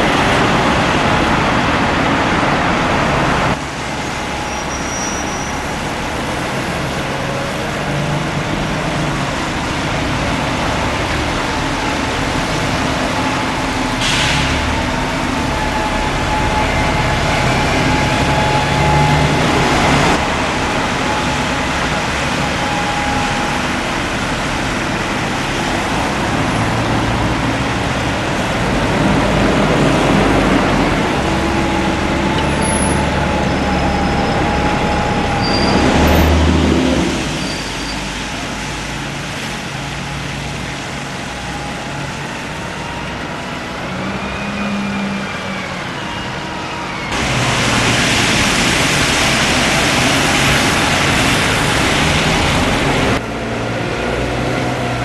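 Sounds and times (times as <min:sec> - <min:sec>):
diesel bus engines: 0:00.0 - 0:55.0
road traffic: 0:00.0 - 0:55.0
air brake hiss: 0:14.0 - 0:14.7.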